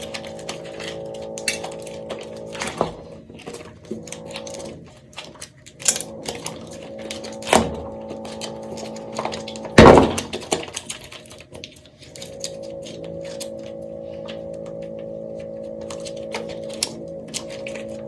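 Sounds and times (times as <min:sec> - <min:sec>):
soap cracking and crumbling: 0:00.0 - 0:13.5
soft background music: 0:12.3 - 0:18.0.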